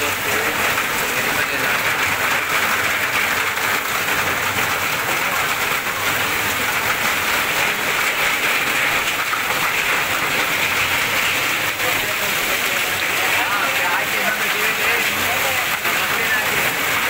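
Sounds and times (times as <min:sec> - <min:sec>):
heavy rain into standing water: 0:00.0 - 0:17.0.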